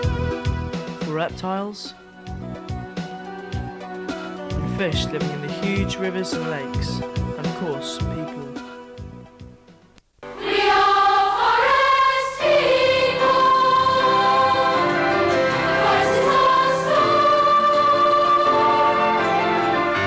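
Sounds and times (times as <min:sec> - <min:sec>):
choir singing in harmony: 0:10.3 - 0:20.0.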